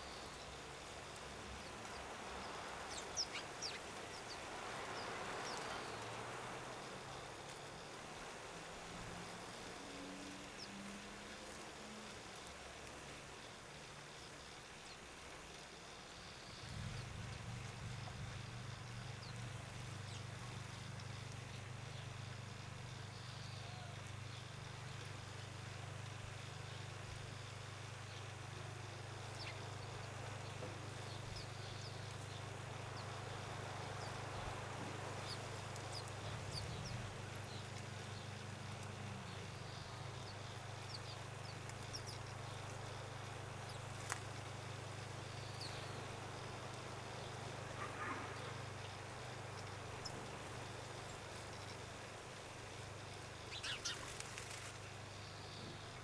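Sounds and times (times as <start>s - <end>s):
small birds chirping: 0.0s - 6.9s, 13.3s - 56.0s
steady low hum: 0.0s - 56.0s
faint bird chirps: 22.9s - 25.5s, 53.4s - 56.0s.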